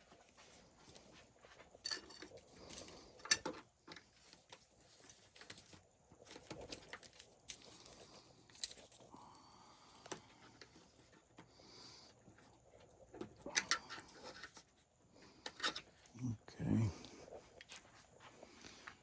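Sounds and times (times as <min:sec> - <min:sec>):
small tools and plastic parts clicking: 0:01.8 - 0:09.1, 0:13.2 - 0:16.1.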